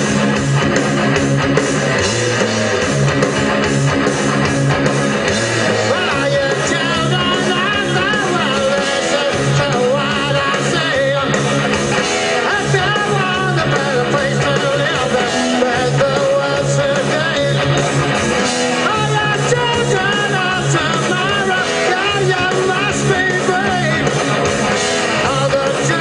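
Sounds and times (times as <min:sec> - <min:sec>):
bass and drums: 0:00.0 - 0:26.0
electric guitar: 0:00.0 - 0:26.0
live rock band playing: 0:00.0 - 0:26.0
person singing: 0:05.6 - 0:11.7, 0:12.4 - 0:17.8, 0:18.8 - 0:24.1, 0:25.2 - 0:26.0.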